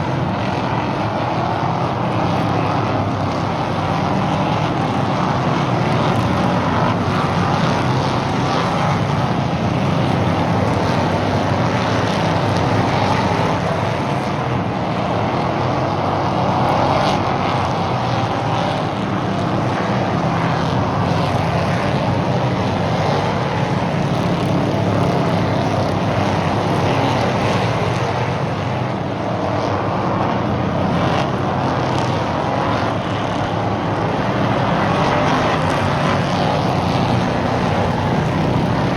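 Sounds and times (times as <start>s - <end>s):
race car engines droning: 0.0s - 38.9s.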